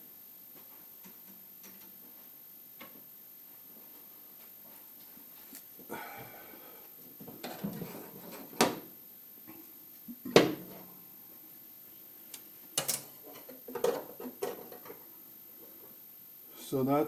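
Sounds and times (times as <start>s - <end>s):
knocks and clatters of tools: 12.8s - 15.0s.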